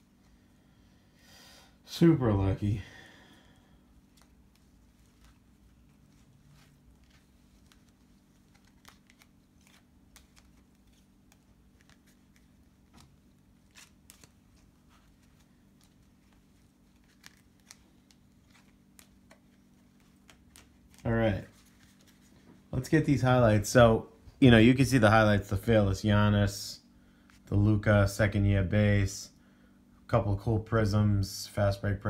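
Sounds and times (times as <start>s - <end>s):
trading cards clicking and rustling: 3.9s - 22.6s.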